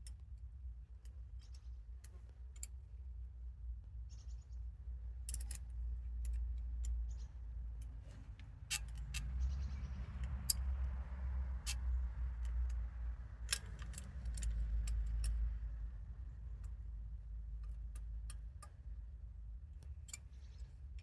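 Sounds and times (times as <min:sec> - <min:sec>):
clicks and taps on engine parts: 0:05.3 - 0:11.0, 0:11.6 - 0:15.6, 0:16.5 - 0:19.0.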